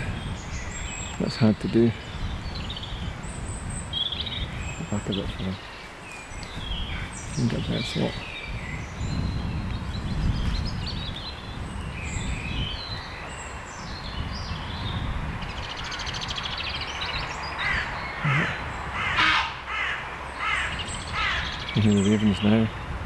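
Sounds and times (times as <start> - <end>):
songbirds twittering: 0.0 - 23.0
ravens cawing: 17.6 - 21.7.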